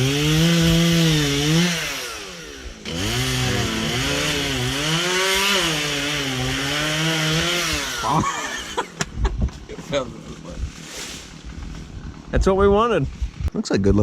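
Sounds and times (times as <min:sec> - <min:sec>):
chainsaw cutting wood: 0:00.0 - 0:09.2.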